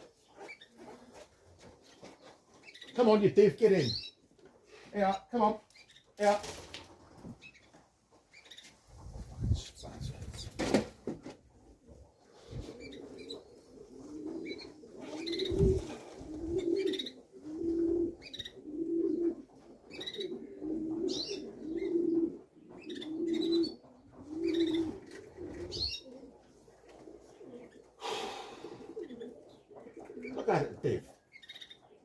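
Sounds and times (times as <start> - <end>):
pigeon cooing: 0.0 - 2.5, 11.6 - 32.0
birds chirping: 0.0 - 6.3, 11.8 - 32.0.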